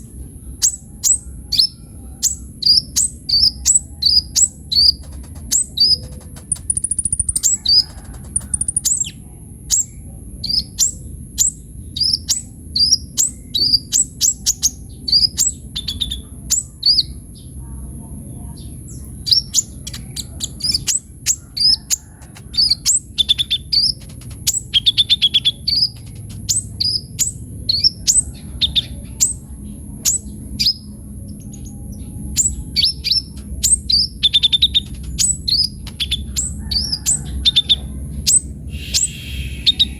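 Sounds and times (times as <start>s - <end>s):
sunbird chirping: 0.0s - 17.5s, 18.4s - 39.9s.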